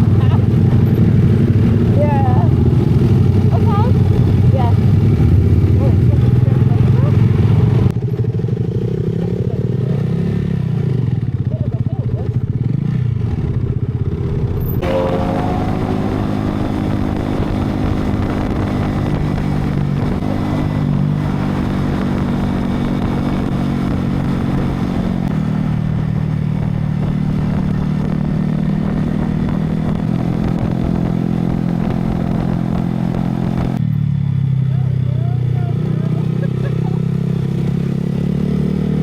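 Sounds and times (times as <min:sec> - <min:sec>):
motorcycle engine running: 0:00.0 - 0:39.0
wind noise: 0:14.0 - 0:33.8.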